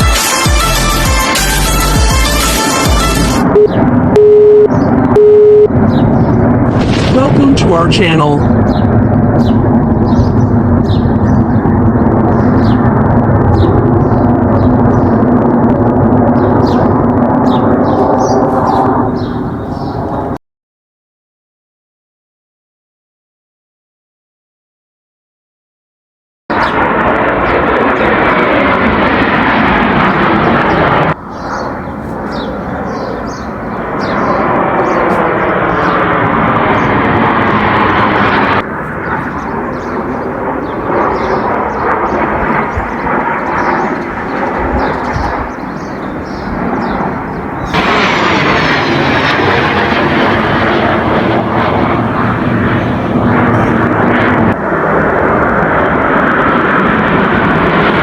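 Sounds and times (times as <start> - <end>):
aircraft flying past: 1.4 - 20.4, 26.5 - 58.0.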